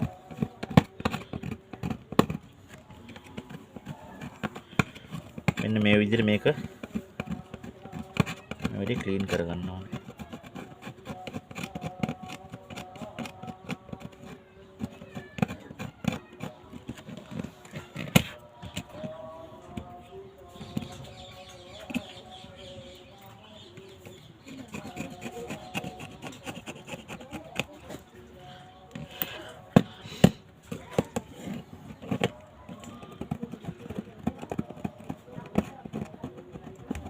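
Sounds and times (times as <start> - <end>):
scraping and rubbing: 0.0 - 37.0.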